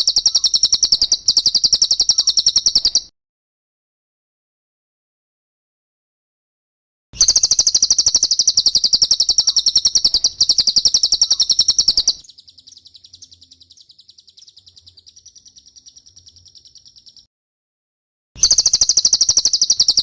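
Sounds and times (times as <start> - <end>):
bird trilling: 0.0 - 3.1, 7.2 - 17.3, 18.4 - 20.0.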